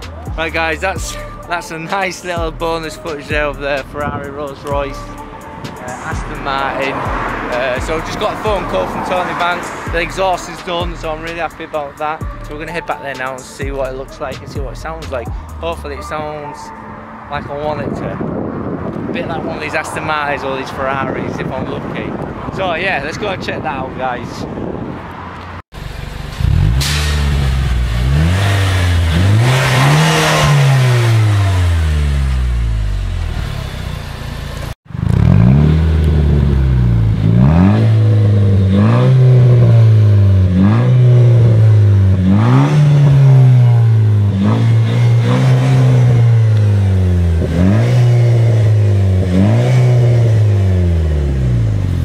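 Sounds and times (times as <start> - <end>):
car engine revving through exhaust: 6.1 - 11.5, 25.8 - 52.0.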